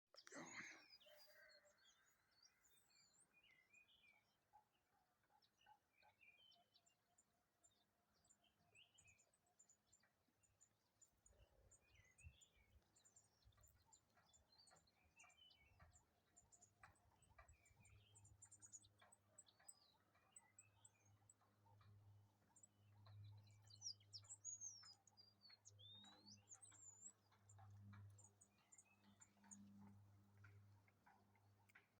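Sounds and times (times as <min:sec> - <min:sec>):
small birds chirping: 0:00.1 - 0:31.9.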